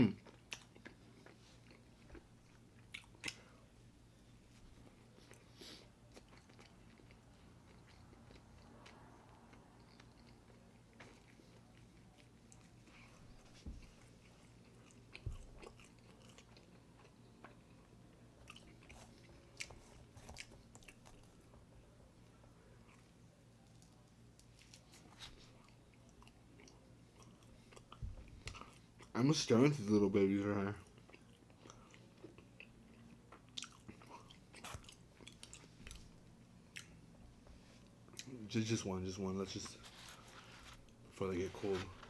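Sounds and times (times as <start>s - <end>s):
chewing food: 0.2s - 3.5s, 4.7s - 21.6s, 22.8s - 29.2s, 30.7s - 37.0s.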